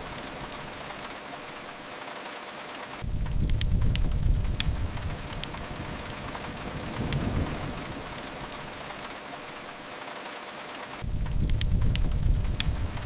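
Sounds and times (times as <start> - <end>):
rain hissing: 0.0 - 13.0
wood fire crackling: 0.0 - 13.0
low rumble: 3.0 - 8.9, 11.0 - 13.0.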